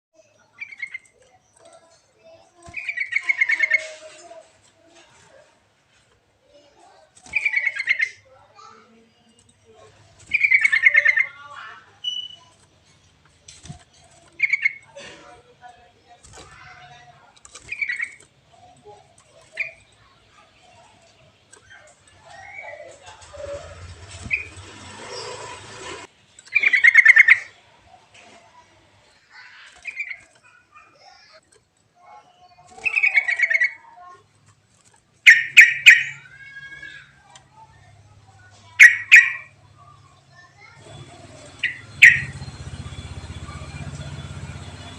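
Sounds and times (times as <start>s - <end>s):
bird chattering calls: 0.4s - 4.1s, 6.8s - 8.7s, 9.7s - 13.1s, 13.7s - 15.0s, 16.4s - 27.9s, 29.3s - 31.4s, 32.4s - 34.2s, 35.2s - 44.9s
bird bubbling song: 41.4s - 43.4s.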